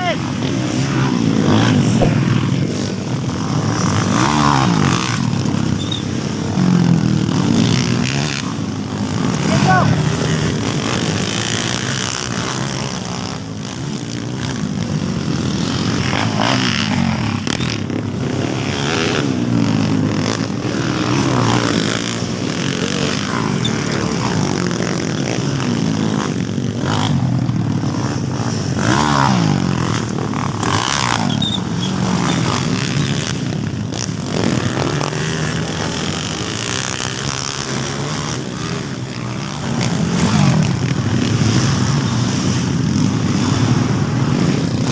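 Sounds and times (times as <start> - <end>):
dirt bike engines revving: 0.0 - 44.9.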